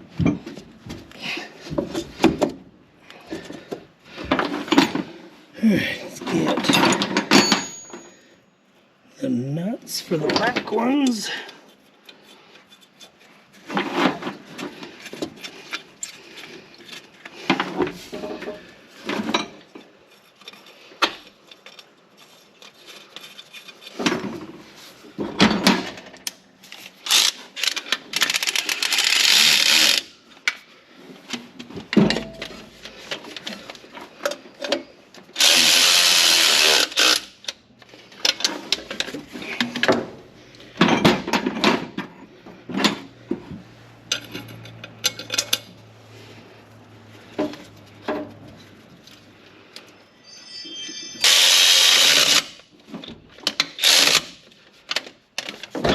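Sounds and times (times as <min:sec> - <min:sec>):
metal tools clinking and knocking: 0:06.2 - 0:08.3, 0:44.1 - 0:45.8
power tool running: 0:35.4 - 0:37.2, 0:51.2 - 0:52.5.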